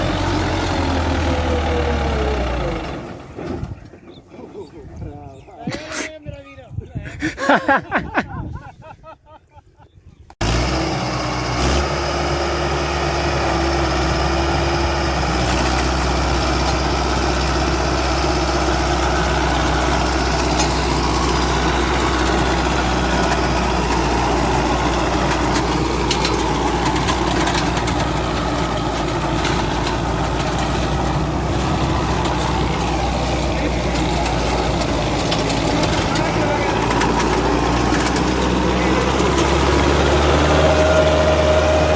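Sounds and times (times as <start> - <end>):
tractor engine running: 0.0 - 4.6, 10.4 - 41.9.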